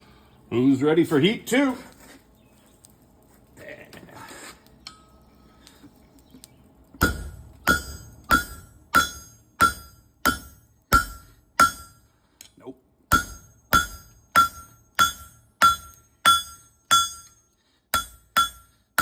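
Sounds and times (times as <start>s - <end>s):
hammer striking steel on anvil: 7.0s - 19.0s.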